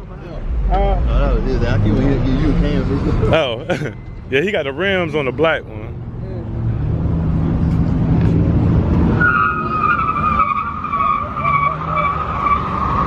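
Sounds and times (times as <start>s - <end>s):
car engine running hard: 0.0s - 9.2s.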